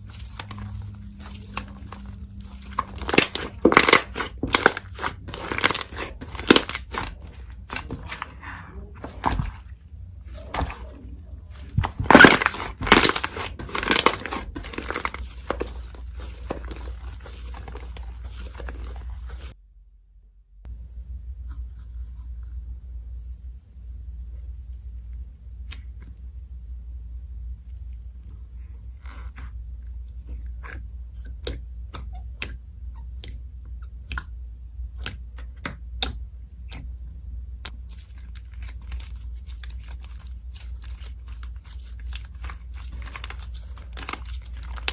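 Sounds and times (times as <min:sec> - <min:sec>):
slime squeezed with crackling pops: 0:02.6 - 0:08.2, 0:11.6 - 0:15.7, 0:42.0 - 0:44.9.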